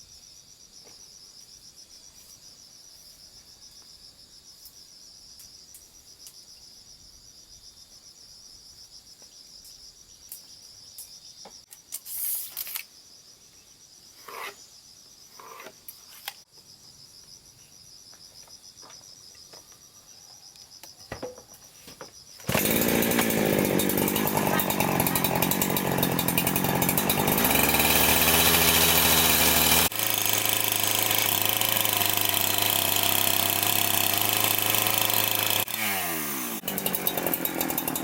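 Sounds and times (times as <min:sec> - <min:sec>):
insects chirping: 0:00.0 - 0:22.8.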